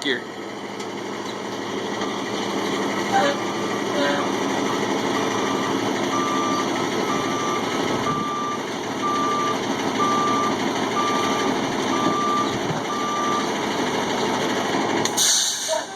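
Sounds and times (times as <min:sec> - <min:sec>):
truck engine running: 0:00.0 - 0:15.9
reverse alarm beeping: 0:05.1 - 0:13.6.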